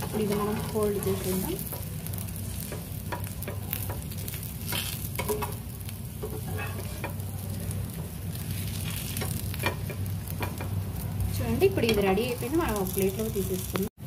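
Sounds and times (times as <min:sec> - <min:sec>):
spatula scraping: 0:00.0 - 0:05.6, 0:06.2 - 0:07.3, 0:07.9 - 0:10.6
dosa sizzling in oil: 0:00.0 - 0:13.9
crackles: 0:00.0 - 0:14.0.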